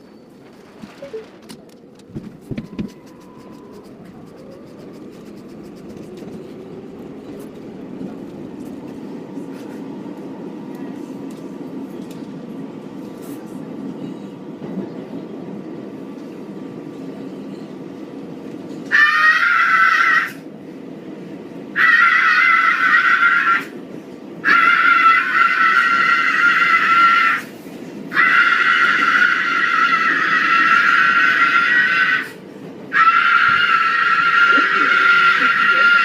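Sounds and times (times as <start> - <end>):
subway car rumble: 0.0 - 36.0
woman screaming: 33.0 - 36.0.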